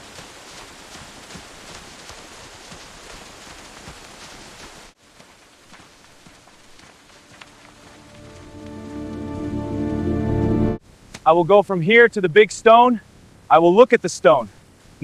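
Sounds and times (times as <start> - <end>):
raindrops ticking: 0.0 - 9.4
steady rain falling: 0.0 - 15.0.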